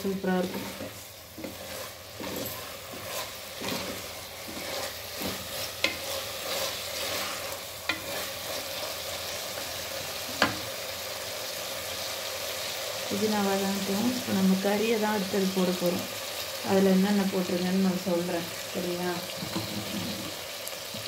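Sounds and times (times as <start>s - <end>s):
spatula stirring: 0.0s - 10.7s
vegetables sizzling in hot oil: 0.0s - 21.0s.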